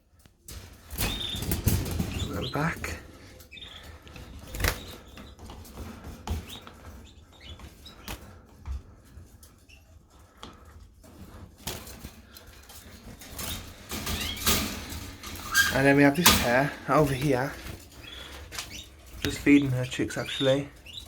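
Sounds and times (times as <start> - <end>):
birds fluttering in cages: 0.4 - 21.0
faint bird chirps: 3.4 - 5.4.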